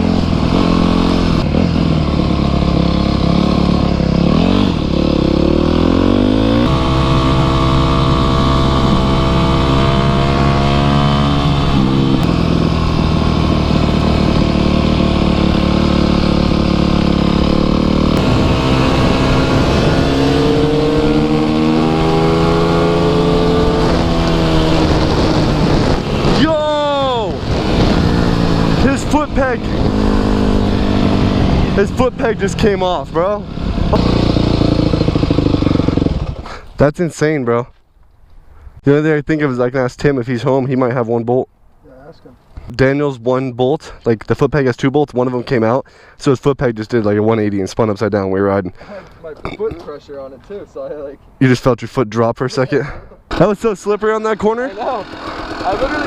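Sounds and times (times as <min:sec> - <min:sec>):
dirt bike engine accelerating: 0:00.0 - 0:36.6, 0:53.3 - 0:56.0.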